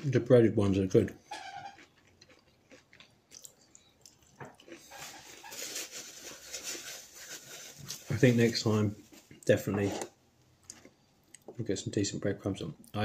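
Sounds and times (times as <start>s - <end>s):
chewing fried fish: 1.4s - 6.8s
paper towel crumpling: 4.9s - 9.2s.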